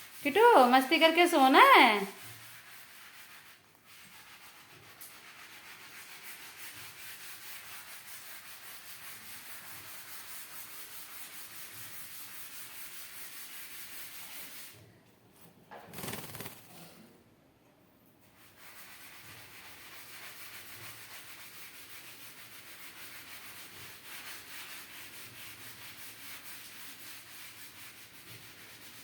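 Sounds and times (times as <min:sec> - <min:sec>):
hand stroking feathers: 0:16.0 - 0:16.6.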